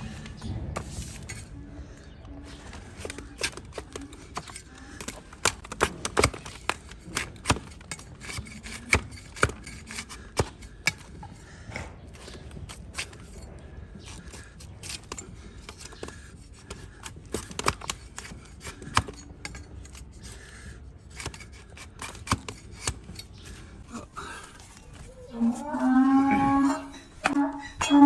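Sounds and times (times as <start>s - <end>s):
scraping hoof: 0.0s - 1.6s, 2.4s - 28.0s
hoof trimming snips and clicks: 2.2s - 23.8s.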